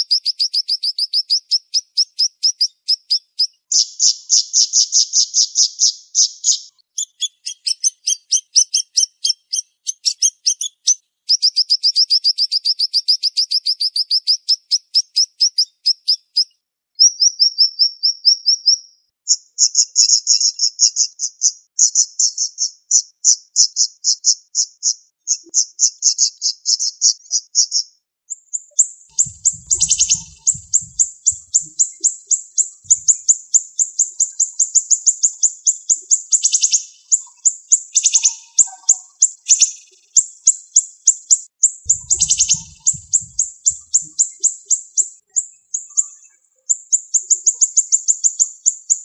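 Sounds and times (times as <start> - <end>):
songbird trilling: 29.1 - 40.0, 41.9 - 45.1.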